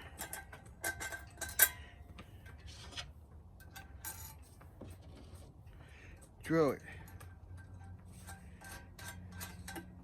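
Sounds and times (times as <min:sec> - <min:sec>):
metal hardware clinking: 0:00.0 - 0:02.6, 0:03.5 - 0:04.6, 0:06.9 - 0:10.0.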